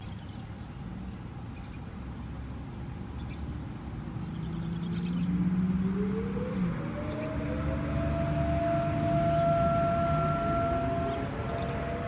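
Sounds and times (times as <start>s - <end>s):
background rumble: 3.6s - 12.0s
distant warning sirens: 4.3s - 12.0s
low steady tone: 5.4s - 12.0s
siren winding up: 5.8s - 12.0s.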